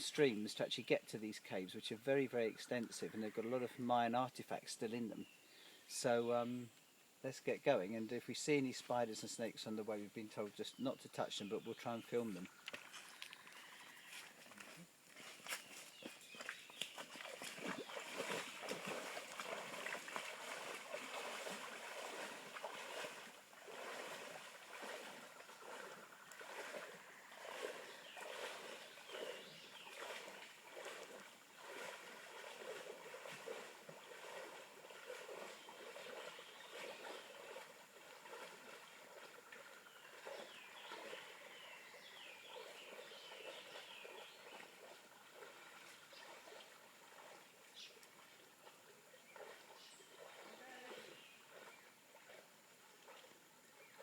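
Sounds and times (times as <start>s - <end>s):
running stream: 0.0s - 54.0s
water splashing from wading: 12.2s - 54.0s.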